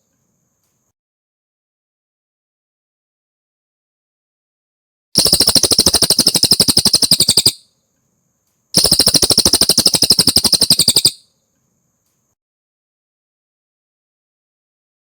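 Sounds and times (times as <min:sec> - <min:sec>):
bird trilling: 0:05.2 - 0:07.6, 0:08.8 - 0:11.2.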